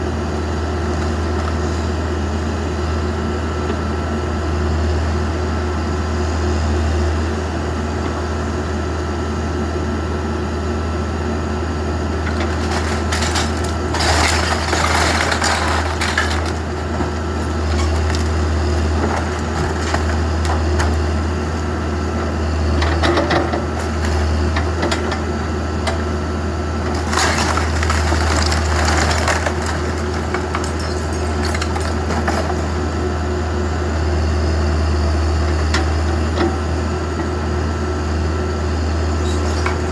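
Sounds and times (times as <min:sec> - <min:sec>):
backhoe engine running: 0:00.0 - 0:39.9
wood crunching and breaking: 0:12.3 - 0:21.1, 0:26.9 - 0:32.6.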